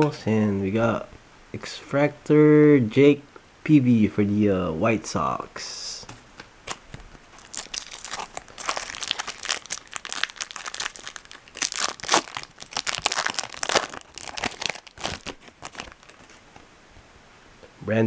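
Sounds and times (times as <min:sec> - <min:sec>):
foil wrapper crinkling: 0:06.7 - 0:16.6.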